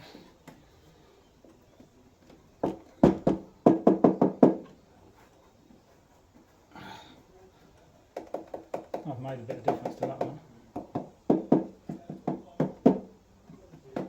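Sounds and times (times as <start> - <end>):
knocks on car body panel: 2.6 - 4.6, 8.2 - 13.1.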